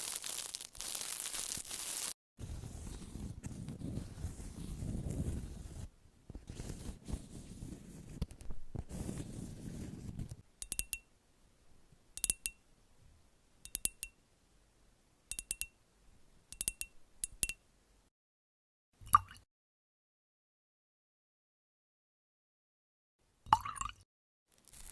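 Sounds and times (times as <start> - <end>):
rustling: 0.0 - 10.4, 24.5 - 24.9.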